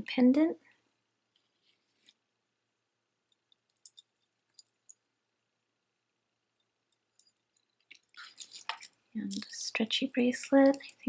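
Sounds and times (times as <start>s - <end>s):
jewelry clicking and clinking: 3.2s - 5.1s, 6.5s - 11.0s.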